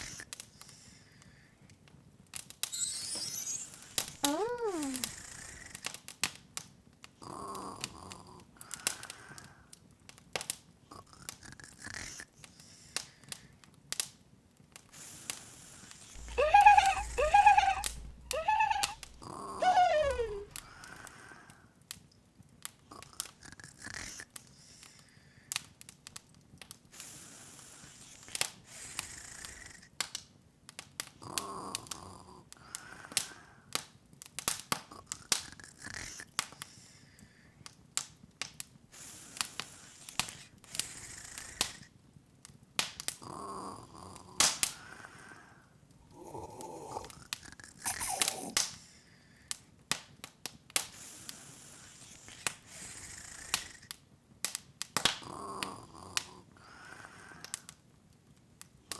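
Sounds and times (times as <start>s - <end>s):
squeaky voice-like calls: 2.7s - 5.2s, 16.2s - 20.8s.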